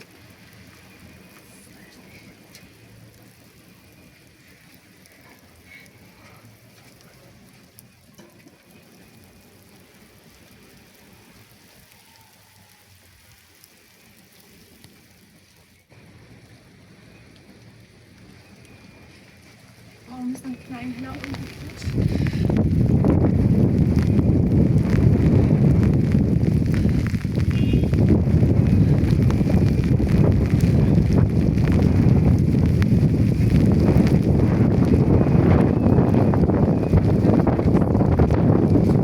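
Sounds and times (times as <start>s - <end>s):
faint water drips: 0.0s - 15.9s
steady rain falling: 0.0s - 39.0s.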